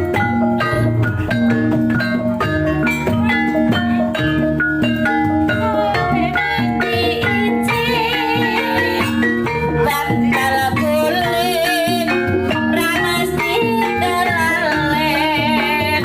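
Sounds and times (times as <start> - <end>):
drum strokes: 0.0 - 16.0
metallophones playing melody: 0.0 - 16.0
wavering high melodic line: 0.0 - 16.0.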